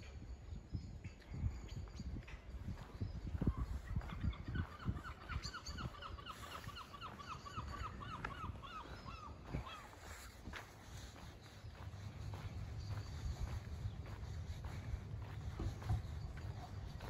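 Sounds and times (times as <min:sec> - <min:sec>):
footsteps thudding: 0:15.4 - 0:16.4.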